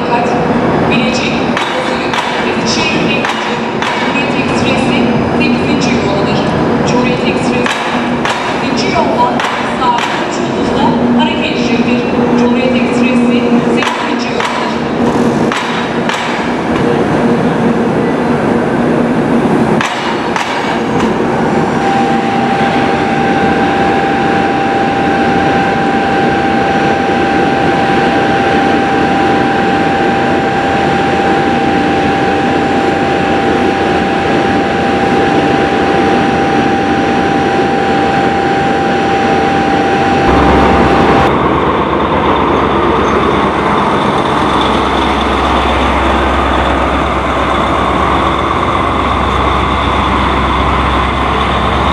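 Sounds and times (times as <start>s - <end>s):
train rumbling on rails: 0.0s - 51.9s
sharp knocks: 15.5s - 16.5s
high steady tone: 21.8s - 41.8s.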